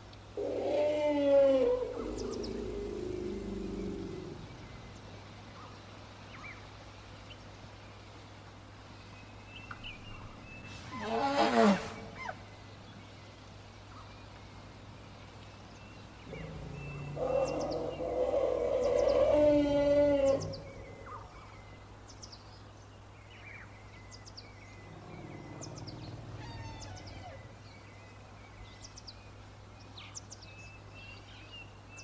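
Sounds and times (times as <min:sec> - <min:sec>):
low steady animal call: 0:00.4 - 0:05.7, 0:10.2 - 0:12.5, 0:15.8 - 0:21.8, 0:24.6 - 0:28.2
elephant trumpeting: 0:10.9 - 0:12.4, 0:16.3 - 0:21.2, 0:25.0 - 0:27.6
faint bird chirps: 0:23.4 - 0:29.1.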